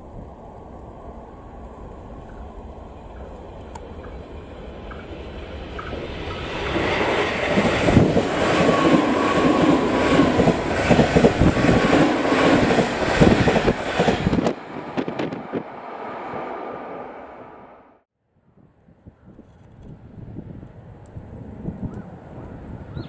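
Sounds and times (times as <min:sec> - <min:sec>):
electric train passing: 0:00.0 - 0:18.0.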